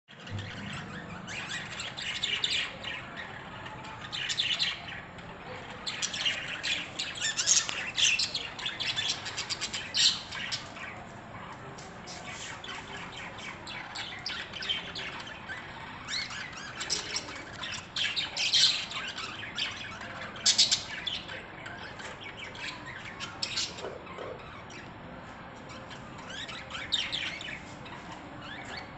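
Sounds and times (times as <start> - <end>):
budgerigars chattering and squawking: 0.2 - 5.1, 5.8 - 11.0, 12.1 - 24.9.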